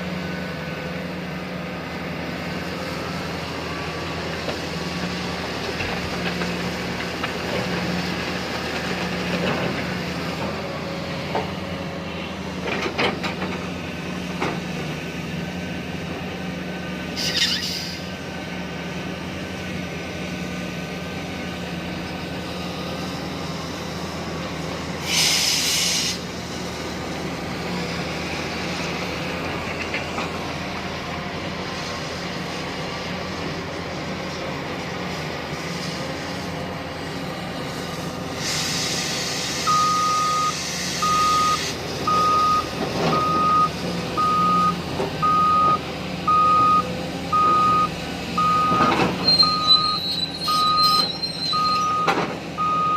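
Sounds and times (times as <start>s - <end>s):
excavator diesel engine running: 0.0s - 52.9s
hiss burst: 25.0s - 26.3s, 38.3s - 39.7s, 40.5s - 41.8s
reversing alarm beeping: 39.6s - 52.9s.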